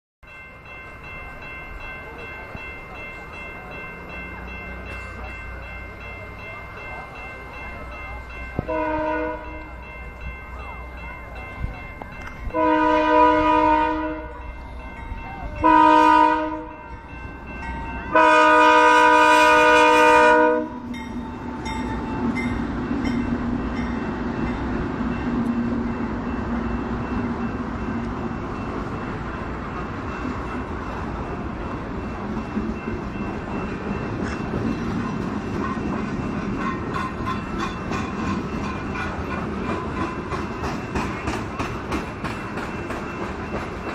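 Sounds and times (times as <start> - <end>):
train wheels running on rails: 0.2 - 43.9
train horn blasts: 8.6 - 9.7, 12.5 - 14.5, 15.6 - 16.8, 18.1 - 21.0.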